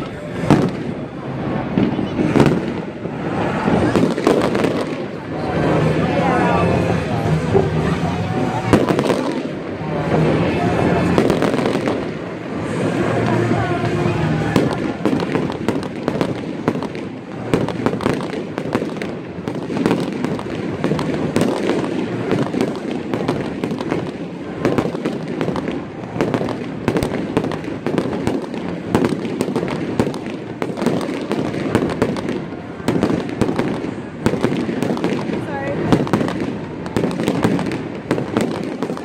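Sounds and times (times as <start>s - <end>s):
fireworks shells bursting: 14.3s - 39.0s.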